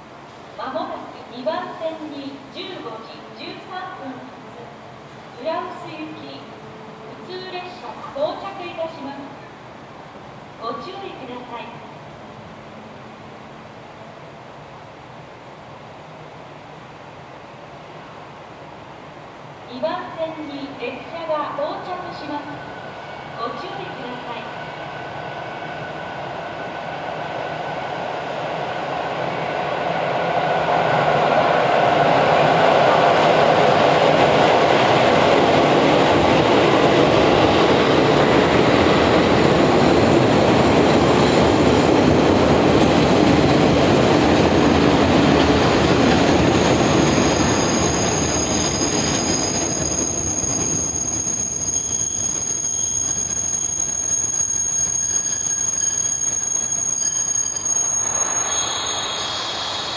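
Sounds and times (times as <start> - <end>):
train rumble and wheel noise: 0.0 - 59.9
high brake squeal: 24.6 - 26.8, 46.8 - 59.9.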